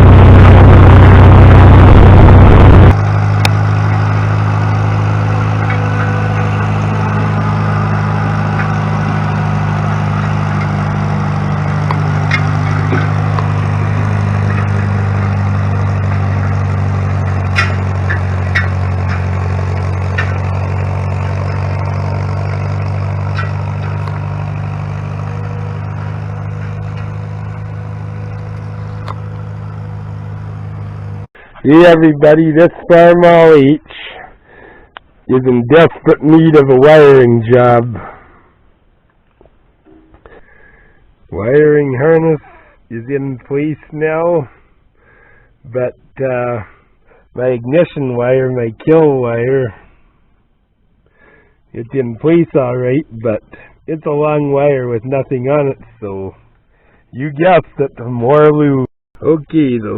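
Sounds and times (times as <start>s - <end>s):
engine running: 0.0s - 32.1s.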